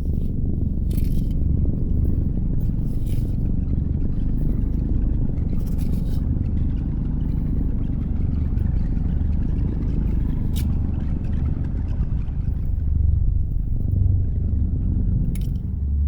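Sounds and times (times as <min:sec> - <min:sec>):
steady low rumble: 0:00.0 - 0:16.0
faint light scrapes: 0:02.0 - 0:03.5, 0:05.6 - 0:06.3.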